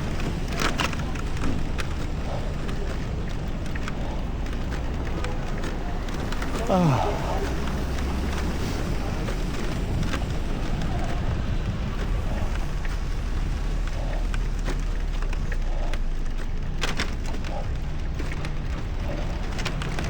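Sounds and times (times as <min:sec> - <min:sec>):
wind buffeting microphone: 0:00.0 - 0:15.5
faint clicks: 0:00.0 - 0:20.0
traffic noise: 0:00.0 - 0:20.0
tyre noise: 0:00.0 - 0:20.0.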